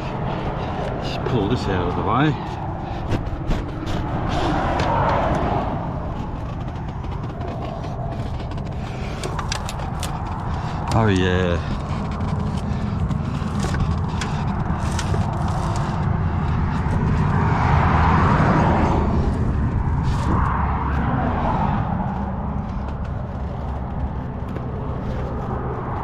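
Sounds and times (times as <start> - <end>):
low engine rumble: 0.0 - 26.0
light clicks and knocks: 3.1 - 17.2.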